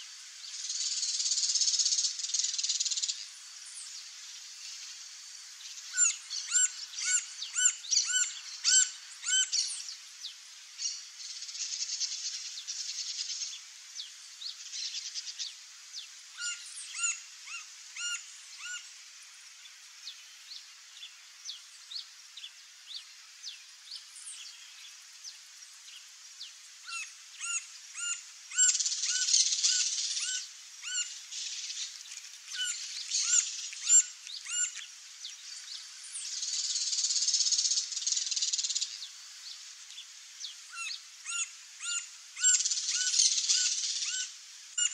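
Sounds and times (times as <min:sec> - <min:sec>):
high rasping hiss: 0:00.0 - 0:44.9.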